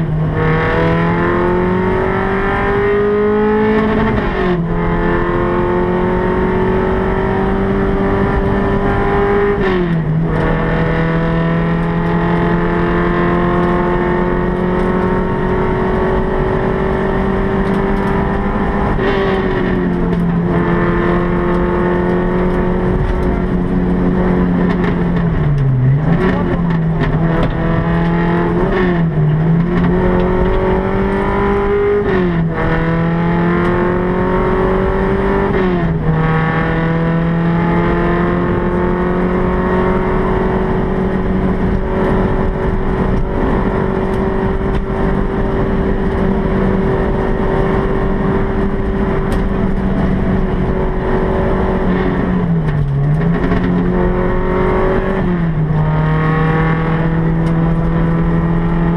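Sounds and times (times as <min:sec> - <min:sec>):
car engine at high revs: 0:00.0 - 0:58.9
road and tyre noise: 0:00.0 - 0:58.9.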